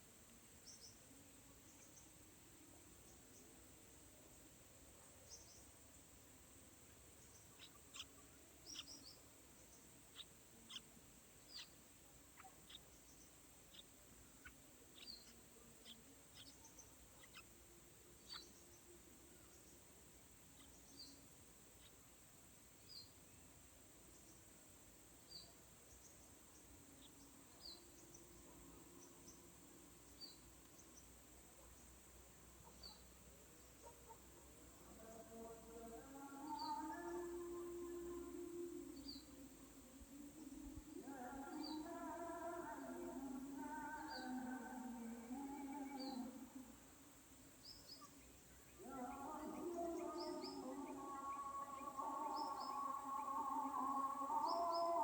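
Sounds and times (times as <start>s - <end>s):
faint steady hiss: 0.0s - 55.0s
small bird chirping: 5.2s - 5.8s, 6.8s - 22.1s, 22.8s - 23.4s, 25.2s - 34.3s, 40.6s - 46.5s, 47.6s - 55.0s.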